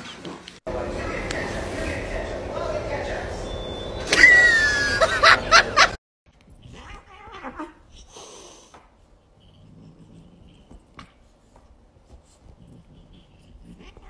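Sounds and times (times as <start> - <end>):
bursts of laughter: 4.1 - 6.0
high falling cry: 4.1 - 6.0
puppy and cat play-fighting: 6.3 - 14.0.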